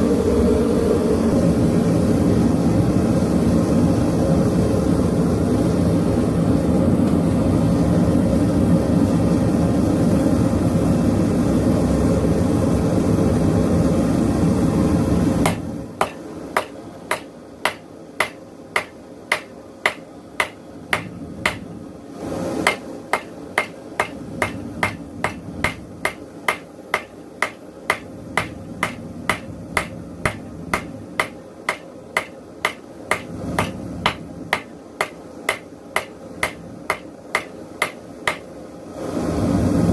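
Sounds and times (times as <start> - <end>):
forge burner roaring: 0.0 - 39.9
hammer striking steel on anvil: 15.4 - 21.7, 22.6 - 38.5.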